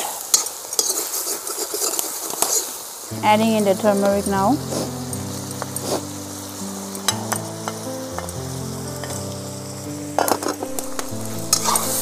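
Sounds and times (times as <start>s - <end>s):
food sizzling in a wok: 0.0s - 12.0s
metal ladle scraping a wok: 0.3s - 2.9s, 10.2s - 12.0s.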